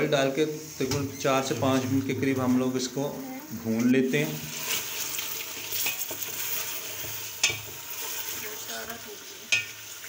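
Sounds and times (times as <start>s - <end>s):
meat sizzling in hot oil: 0.0s - 10.0s
spoon scraping against pot: 3.8s - 10.0s.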